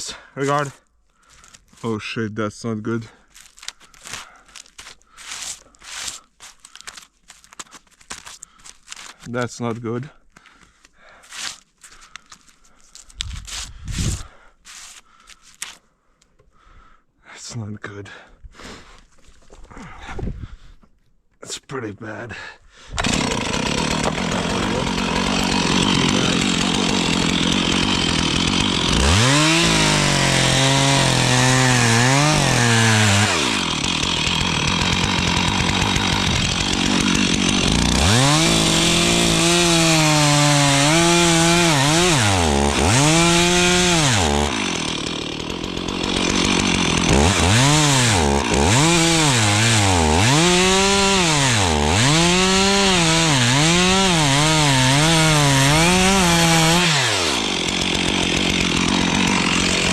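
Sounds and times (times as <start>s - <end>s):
chainsaw cutting wood: 3.4s - 9.3s, 22.9s - 59.9s.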